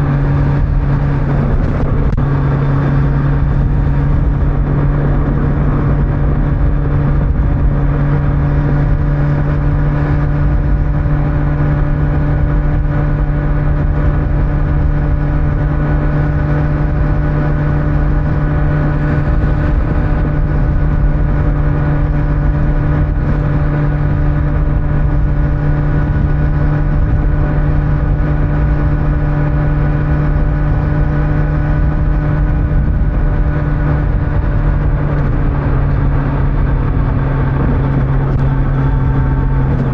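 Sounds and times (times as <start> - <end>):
motorcycle engine cruising: 0.0 - 39.9
wind and tyre noise: 0.0 - 39.9.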